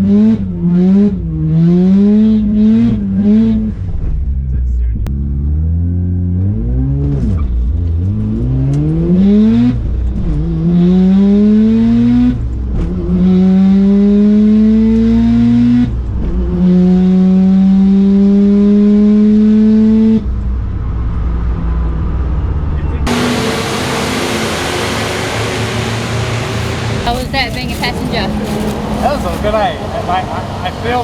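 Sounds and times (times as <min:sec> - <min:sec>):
rotary engine at full throttle: 0:00.0 - 0:04.2, 0:05.1 - 0:31.0
gear upshifts: 0:23.1 - 0:31.0.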